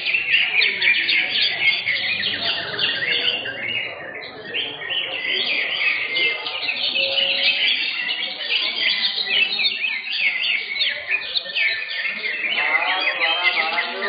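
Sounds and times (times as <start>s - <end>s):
birds chirping and whistling: 0.0s - 14.0s.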